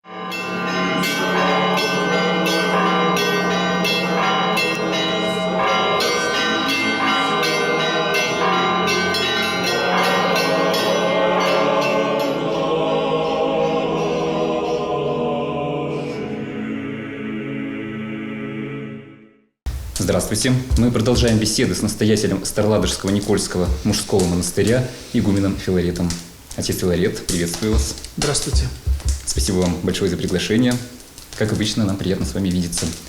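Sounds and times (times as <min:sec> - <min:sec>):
church bells pealing: 0:00.0 - 0:14.7.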